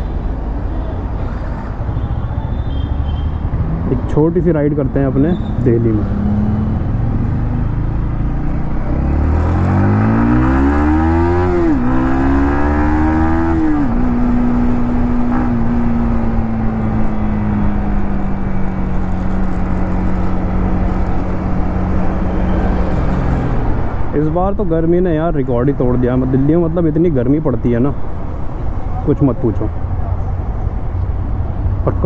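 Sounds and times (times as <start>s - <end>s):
wind and road noise: 0.0s - 32.0s
motorcycle engine accelerating: 6.0s - 24.0s.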